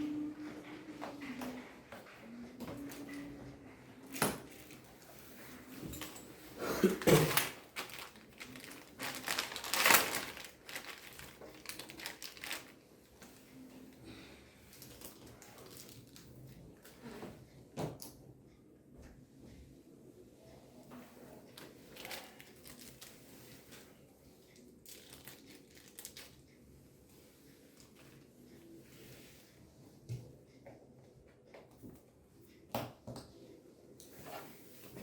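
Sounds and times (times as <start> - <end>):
packaging crinkling and rustling: 7.0 - 12.8, 14.7 - 16.6, 21.6 - 23.9, 24.8 - 26.4.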